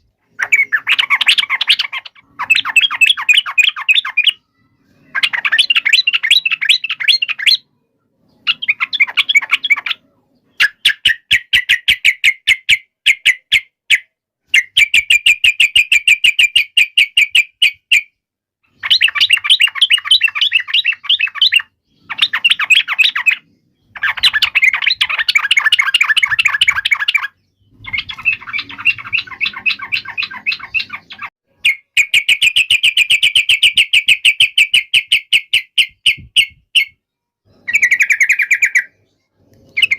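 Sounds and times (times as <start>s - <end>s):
bulbul singing rapid chattering notes: 0.3s - 4.4s, 18.8s - 37.0s.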